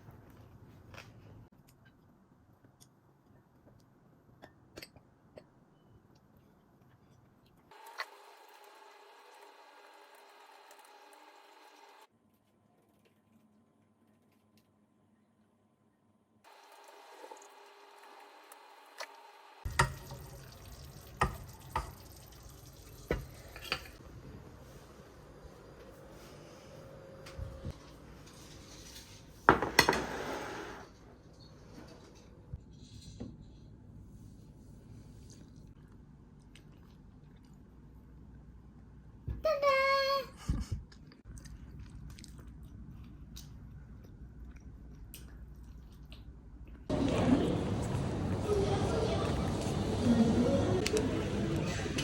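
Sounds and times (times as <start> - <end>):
chewing with crunching clicks: 35.3 - 37.8, 40.9 - 46.9.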